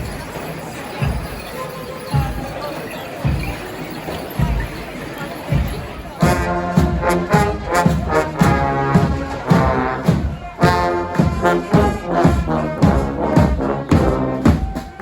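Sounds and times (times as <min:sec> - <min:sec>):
steady drum beat: 0:00.0 - 0:15.0
brass band playing: 0:05.7 - 0:15.0.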